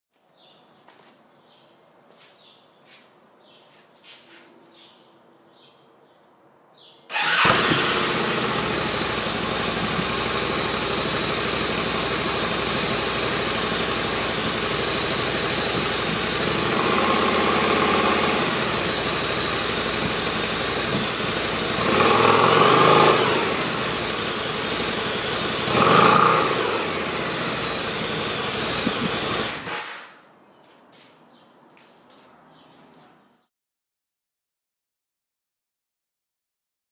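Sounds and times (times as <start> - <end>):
motorcycle engine revving: 7.1 - 30.0
motorcycle engine starting and idling: 7.1 - 30.1.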